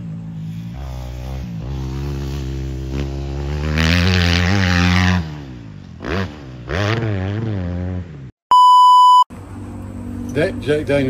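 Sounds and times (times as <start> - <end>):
dirt bike engine revving: 0.0 - 8.3.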